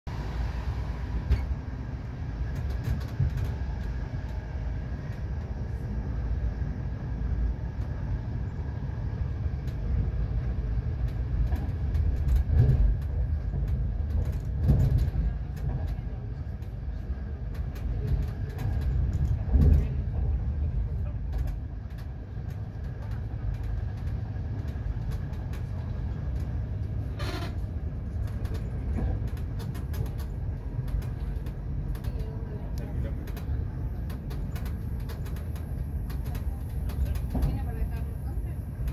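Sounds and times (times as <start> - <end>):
train wheels rumbling on track: 0.1 - 38.9
sharp clicks and knocks: 11.0 - 16.8, 28.2 - 37.7.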